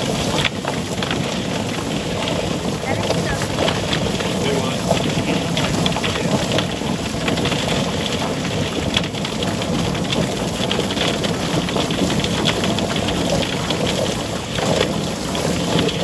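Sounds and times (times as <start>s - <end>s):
chicken plucker running: 0.0s - 8.9s.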